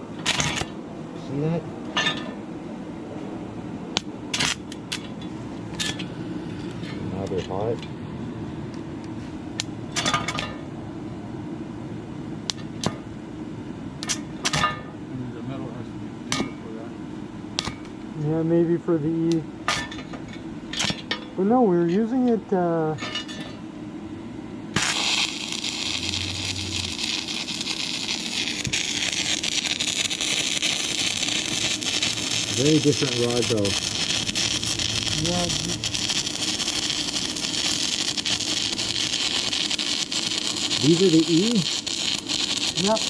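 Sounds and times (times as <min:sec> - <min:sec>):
welding arc frying crackle: 0:00.0 - 0:00.8, 0:04.0 - 0:07.8, 0:24.7 - 0:43.0
steady low hum: 0:00.0 - 0:43.0.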